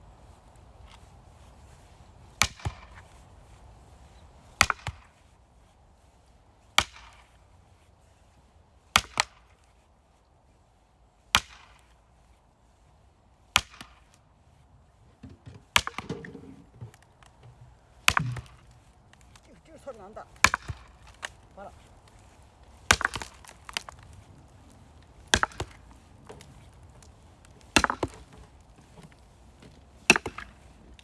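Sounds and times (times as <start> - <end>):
axe chopping firewood: 2.4 - 3.1, 4.6 - 5.2, 6.8 - 7.3, 9.0 - 9.5, 11.4 - 11.9, 13.5 - 14.1, 15.2 - 31.0
wood knocking: 15.2 - 18.8.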